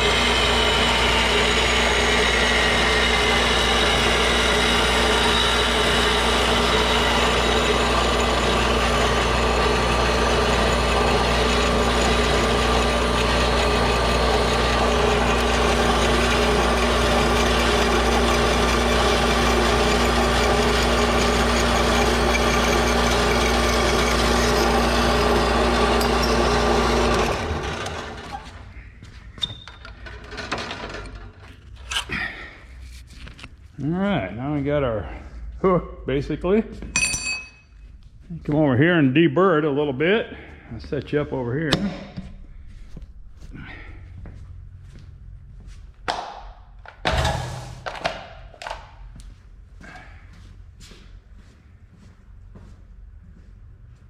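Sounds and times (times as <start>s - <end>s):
bandsaw cutting metal: 0.0s - 28.7s, 30.0s - 32.2s.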